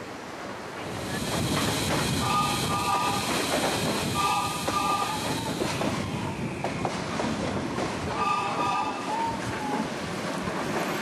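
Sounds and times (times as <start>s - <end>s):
train wheels clattering on rails: 0.8s - 11.0s
train horn blasts: 4.2s - 5.3s.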